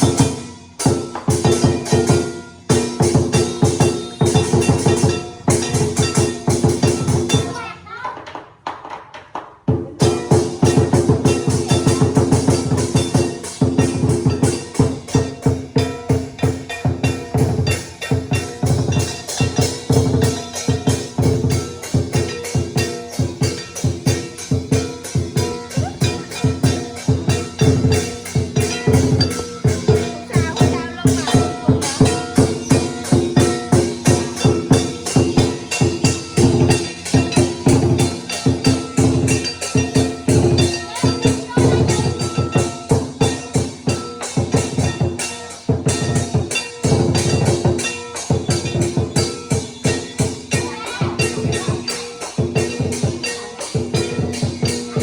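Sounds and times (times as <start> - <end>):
cymbals and gong ringing: 0.0 - 7.6, 10.0 - 55.0
rapid drum beats: 0.0 - 55.0
ringing pitched tone: 21.6 - 35.8.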